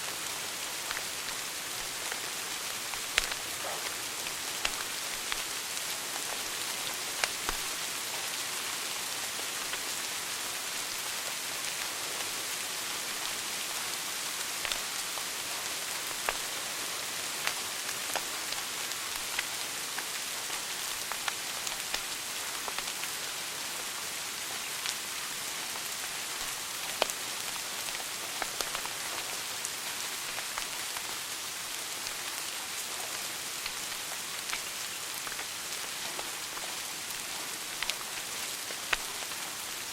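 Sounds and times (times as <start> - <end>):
wood fire crackling and popping: 2.8 - 5.5, 37.7 - 38.0, 38.8 - 39.3.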